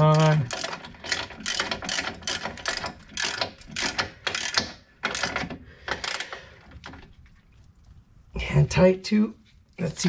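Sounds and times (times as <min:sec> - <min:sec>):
hand ratchet clicking: 0:00.0 - 0:06.5.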